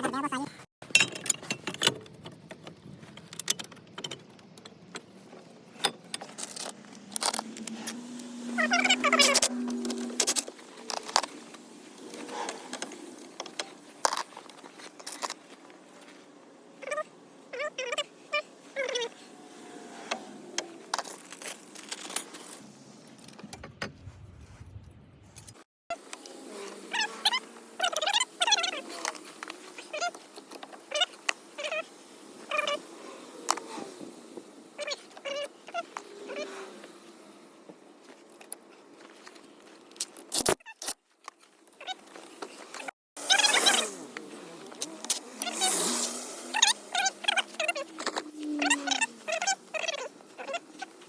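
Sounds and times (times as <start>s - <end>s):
metal tools clinking and rattling: 0.8s - 8.0s
loud wavering sound: 7.1s - 10.4s
low rumble: 23.5s - 25.6s.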